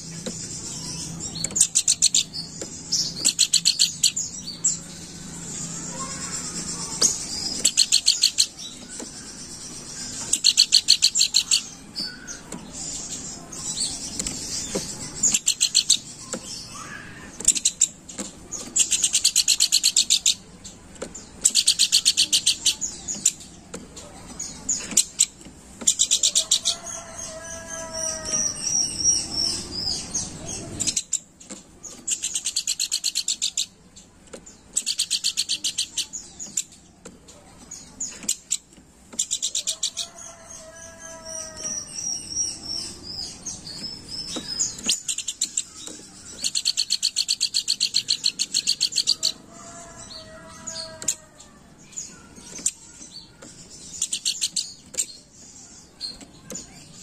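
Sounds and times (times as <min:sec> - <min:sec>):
bird buzzy trills: 0:00.0 - 0:31.0.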